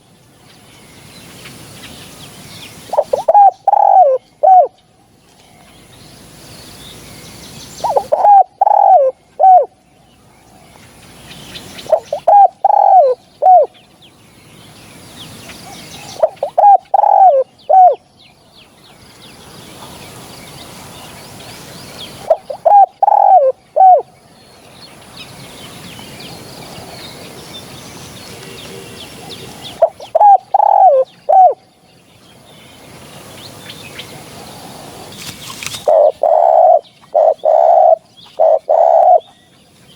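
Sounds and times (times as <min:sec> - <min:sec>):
dove cooing: 0:02.9 - 0:04.8, 0:07.8 - 0:09.8, 0:11.8 - 0:13.8, 0:15.8 - 0:18.0, 0:22.2 - 0:24.1, 0:28.3 - 0:31.6, 0:34.2 - 0:39.3.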